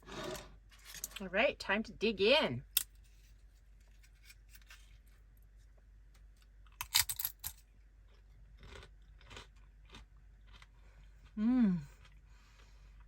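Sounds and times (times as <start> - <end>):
person crunching food: 6.6 - 13.0
chewing crunches: 6.7 - 13.0.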